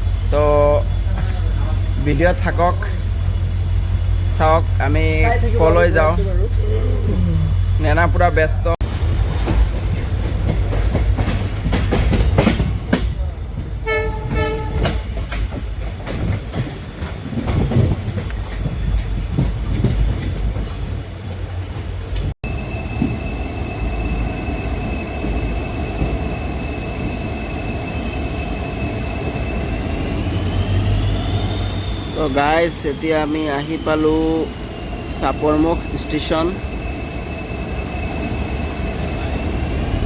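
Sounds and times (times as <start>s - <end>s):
train rumble inside coach: 0.0s - 40.0s
wheels clicking over rail joints: 9.3s - 23.7s
high-pitched whine: 22.4s - 40.0s.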